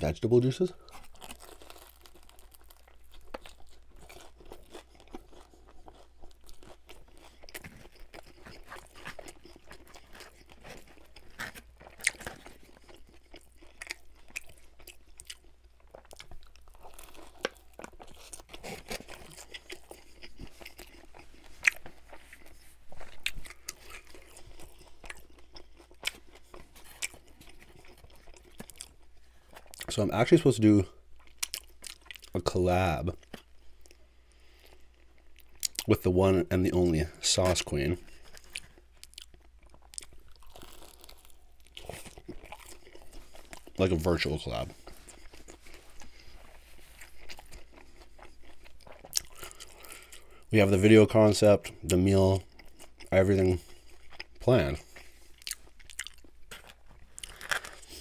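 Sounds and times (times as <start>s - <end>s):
crunchy chewing: 0.4s - 30.4s, 31.1s - 32.5s, 36.8s - 50.6s, 51.8s - 58.0s
biting into crisp food: 0.9s - 29.9s, 54.0s - 58.0s.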